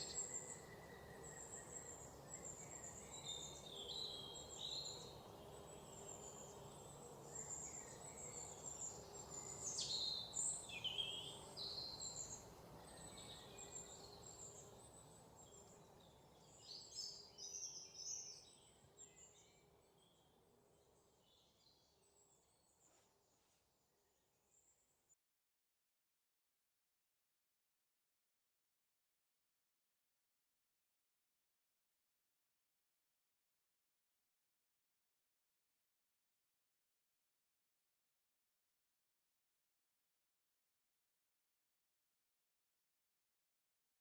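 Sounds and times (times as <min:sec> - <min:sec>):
faint background hiss: 0:00.0 - 0:23.8.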